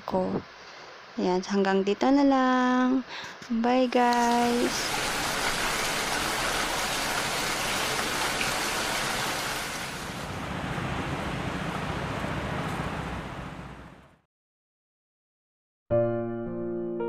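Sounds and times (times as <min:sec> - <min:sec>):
steady rain falling: 0:04.1 - 0:14.1.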